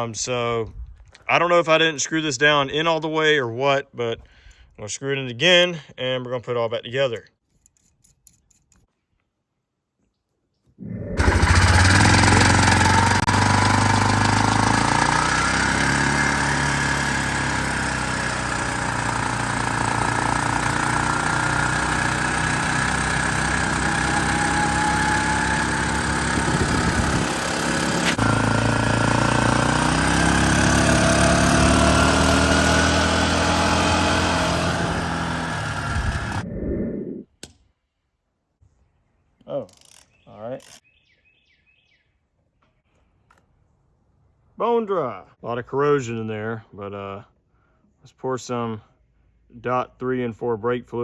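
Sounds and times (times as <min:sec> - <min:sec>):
engine revving: 0:11.2 - 0:36.5.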